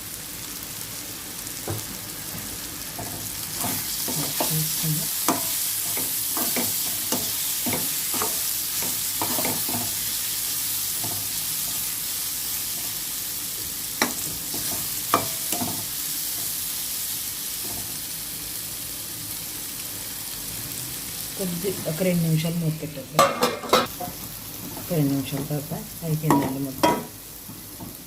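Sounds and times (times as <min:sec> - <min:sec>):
food sizzling in hot oil: 0:00.0 - 0:28.0
spoon scraping a pan: 0:03.0 - 0:10.2.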